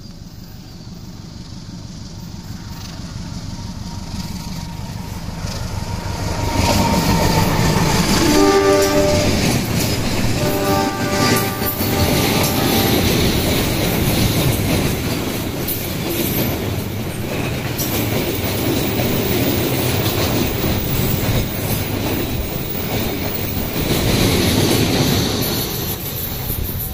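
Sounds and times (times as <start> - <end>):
train wheels clacking over rail joints: 1.3 - 26.9.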